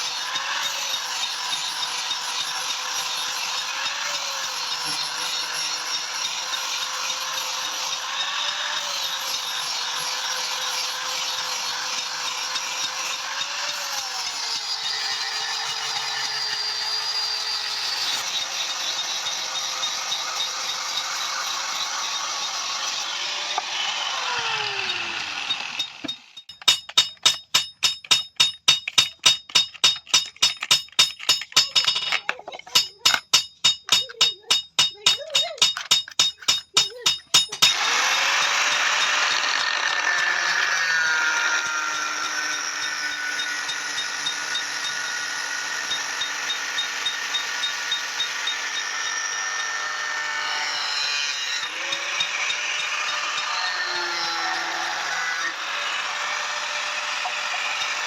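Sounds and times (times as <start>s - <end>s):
hammer beating metal on anvil: 25.5s - 32.2s, 32.8s - 37.9s.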